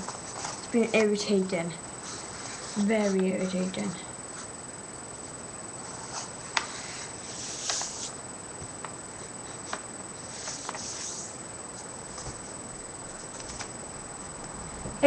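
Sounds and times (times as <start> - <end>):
paper rustling: 0.0 - 1.3, 5.9 - 8.2, 9.4 - 13.8
paper being folded: 5.9 - 8.2, 9.5 - 11.4.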